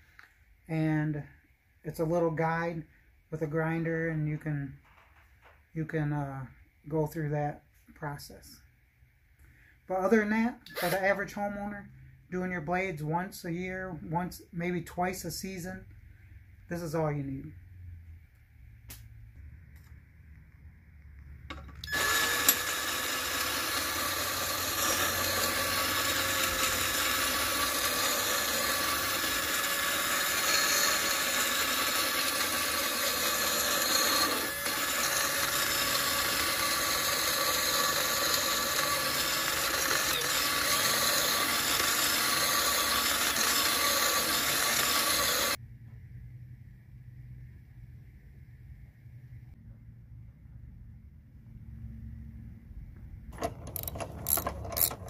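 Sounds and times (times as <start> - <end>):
drill motor hum: 10.7 - 11.2, 21.5 - 45.6, 53.4 - 55.0
grinding stone on steel: 21.8 - 45.6.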